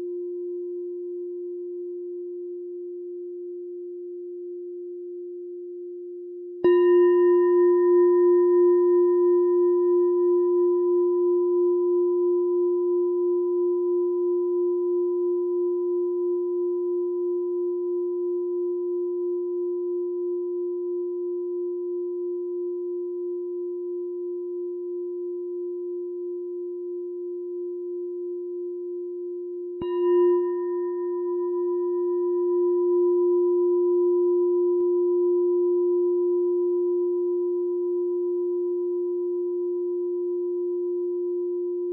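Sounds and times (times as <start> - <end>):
meditation bell ringing: 6.6 - 14.0, 29.6 - 41.9.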